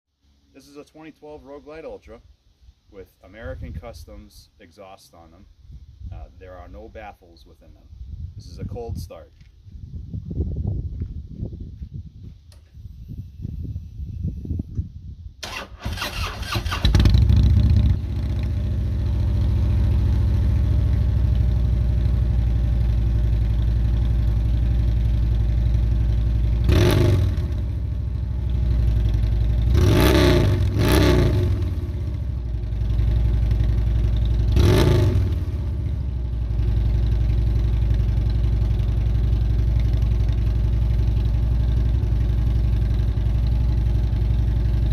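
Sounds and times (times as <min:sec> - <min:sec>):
motorcycle engine idling: 0:16.9 - 0:29.8, 0:31.5 - 0:44.9.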